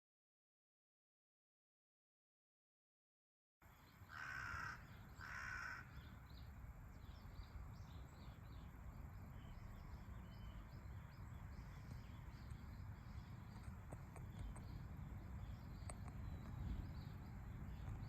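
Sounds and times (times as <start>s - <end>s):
bird calls: 3.7s - 18.0s
steady low rumble: 6.1s - 18.0s.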